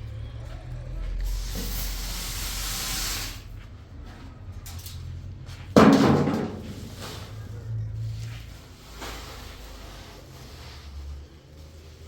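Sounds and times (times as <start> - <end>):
hiss: 1.2 - 3.5.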